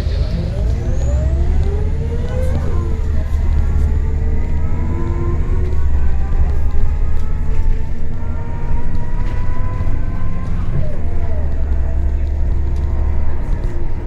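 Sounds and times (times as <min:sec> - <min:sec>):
bus engine rumble pulling away: 0:00.0 - 0:14.0.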